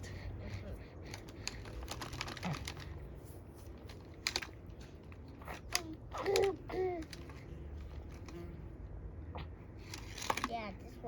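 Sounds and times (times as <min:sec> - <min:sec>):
plastic toys clicking and knocking: 0:01.0 - 0:03.0, 0:03.8 - 0:08.4, 0:09.8 - 0:10.7.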